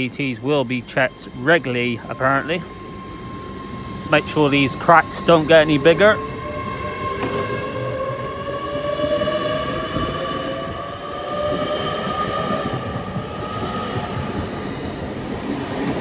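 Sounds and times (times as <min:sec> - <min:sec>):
train low rumble: 0:00.0 - 0:16.0
train traction motor whine: 0:00.0 - 0:16.0.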